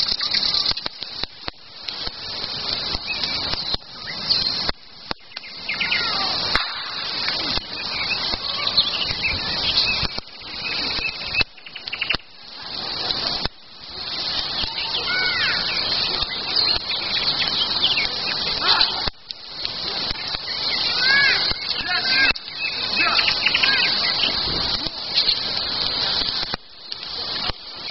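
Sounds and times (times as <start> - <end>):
birds chirping and singing: 0.0 - 0.9, 2.7 - 12.4, 14.1 - 19.1, 19.8 - 25.6
dense rustling noise: 0.0 - 27.9.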